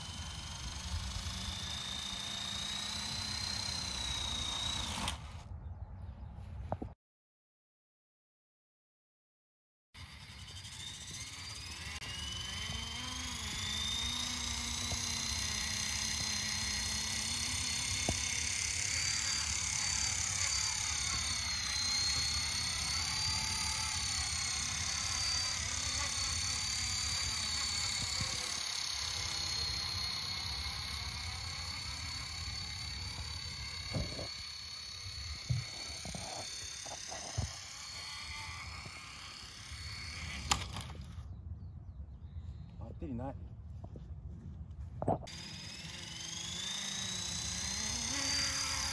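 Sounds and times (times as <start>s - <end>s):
rc helicopter rotor whining: 0.0s - 5.5s, 10.0s - 41.3s, 45.0s - 48.9s.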